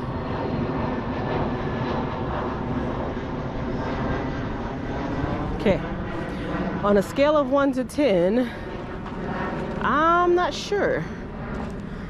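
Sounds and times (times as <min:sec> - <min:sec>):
airplane passing overhead: 0:00.0 - 0:12.0.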